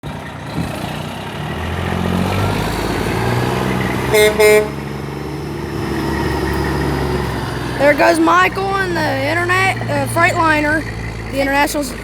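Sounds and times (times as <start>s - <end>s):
heavy vehicle engine pulling away: 0.0s - 12.0s
two-tone horn honks: 4.1s - 4.9s.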